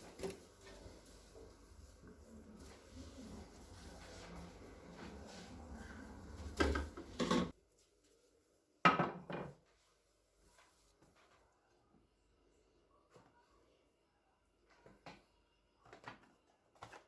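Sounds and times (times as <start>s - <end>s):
kitchen handling knocks: 6.4s - 7.5s.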